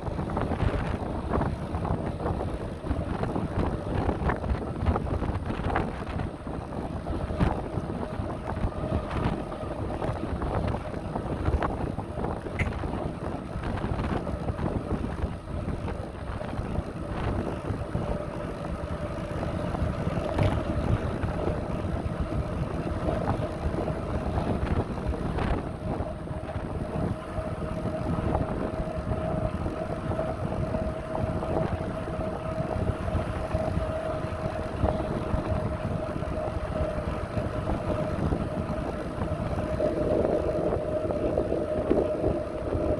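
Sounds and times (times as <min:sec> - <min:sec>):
bicycle tyres rolling on path: 0:00.0 - 0:42.9
wind buffeting microphone: 0:00.0 - 0:42.9.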